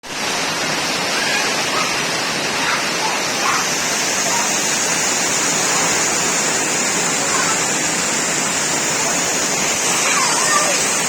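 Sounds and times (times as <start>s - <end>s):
heavy rain pouring: 0.0s - 11.0s
faint voices: 6.9s - 8.1s, 8.8s - 11.0s.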